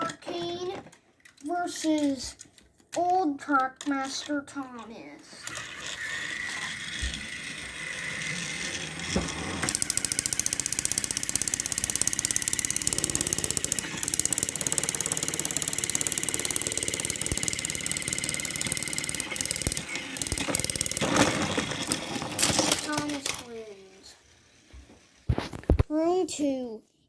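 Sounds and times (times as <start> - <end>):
small electric motors whining: 5.4 - 25.6
rapid clicking gear rattle: 9.6 - 24.0.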